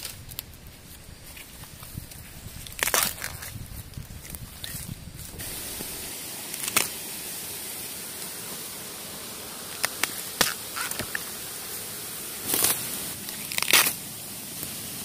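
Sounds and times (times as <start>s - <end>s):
steady high hiss: 0.0s - 15.0s
bamboo shoots snapping: 2.6s - 3.6s, 6.5s - 6.9s, 12.4s - 14.0s.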